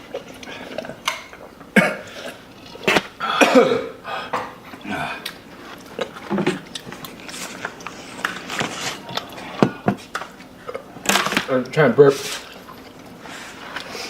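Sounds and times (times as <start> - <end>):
chewing: 0.0 - 3.2, 4.4 - 11.4, 12.3 - 14.0
person coughing: 1.8 - 2.3, 2.9 - 5.2.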